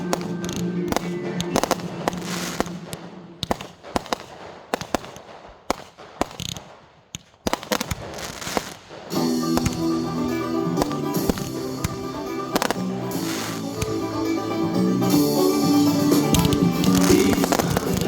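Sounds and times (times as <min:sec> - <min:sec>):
music playing: 0:00.0 - 0:03.4, 0:09.1 - 0:18.0
fireworks bangs and crackles: 0:00.0 - 0:18.0.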